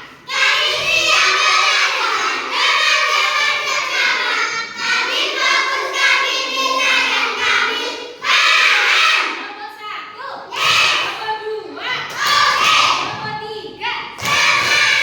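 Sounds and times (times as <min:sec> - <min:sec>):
children singing in unison: 0:00.0 - 0:09.4, 0:14.2 - 0:15.0.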